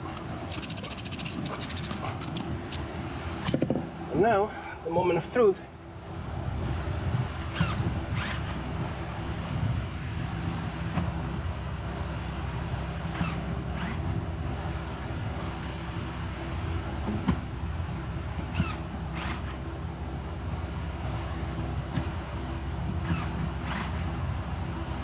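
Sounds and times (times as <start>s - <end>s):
seat electric motor running: 0.5s - 2.8s.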